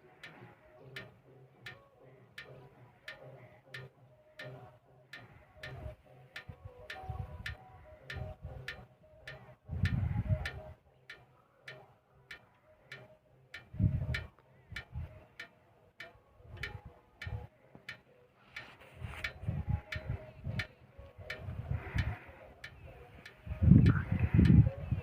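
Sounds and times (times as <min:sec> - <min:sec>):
steady ticking: 0:00.0 - 0:25.0.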